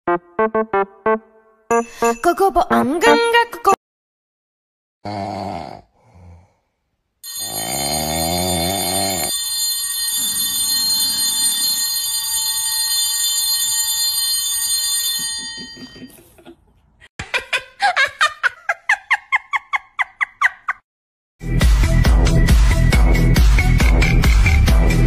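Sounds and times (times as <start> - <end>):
alarm clock bell ringing: 7.2 - 16.2.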